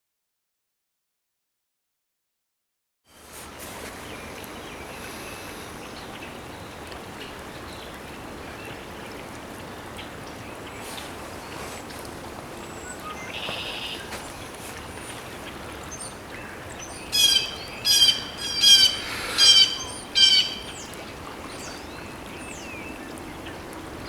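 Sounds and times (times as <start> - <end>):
rushing wind: 10.7 - 24.0
faint bird calls: 12.7 - 22.7.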